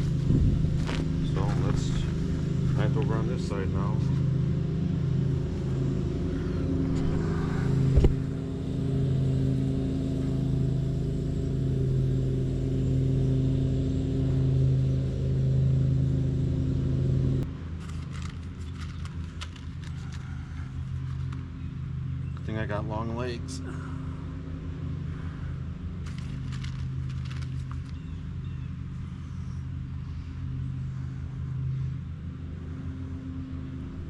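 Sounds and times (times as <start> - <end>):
engine humming: 0.0 - 34.0
faint clicks and rustling: 17.8 - 21.5, 26.0 - 28.1.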